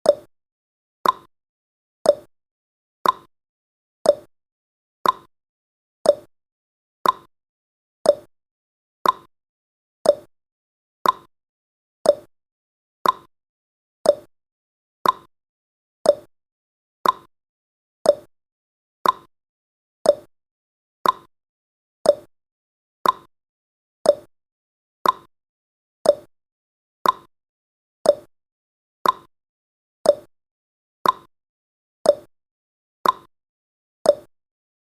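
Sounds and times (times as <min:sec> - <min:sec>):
clock ticking: 0:01.0 - 0:01.3, 0:05.0 - 0:05.3, 0:07.0 - 0:07.3, 0:08.1 - 0:08.3, 0:09.0 - 0:09.3, 0:10.1 - 0:10.3, 0:11.0 - 0:11.3, 0:12.1 - 0:12.3, 0:13.0 - 0:13.3, 0:14.1 - 0:14.3, 0:15.0 - 0:15.3, 0:16.1 - 0:16.3, 0:17.0 - 0:17.3, 0:18.1 - 0:18.3, 0:19.0 - 0:19.3, 0:20.1 - 0:20.3, 0:21.0 - 0:21.3, 0:22.1 - 0:22.3, 0:23.0 - 0:23.3, 0:24.1 - 0:24.3, 0:25.0 - 0:25.3, 0:26.0 - 0:26.3, 0:27.0 - 0:27.3, 0:28.1 - 0:28.3, 0:29.0 - 0:29.3, 0:30.1 - 0:30.3, 0:31.0 - 0:31.3, 0:32.1 - 0:32.3, 0:33.0 - 0:33.3, 0:34.1 - 0:34.3.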